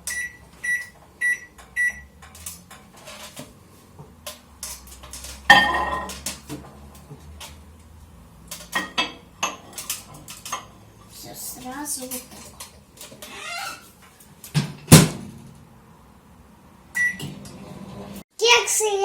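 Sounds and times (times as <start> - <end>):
microwave beeps: 0.0 - 2.2, 16.9 - 17.4
microwave running hum: 15.0 - 18.2.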